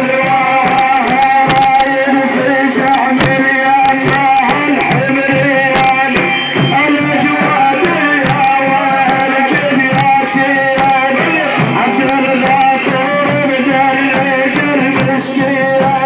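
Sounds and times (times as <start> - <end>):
man chanting a praise song: 0.0 - 16.0
hand drum strikes: 7.8 - 13.5.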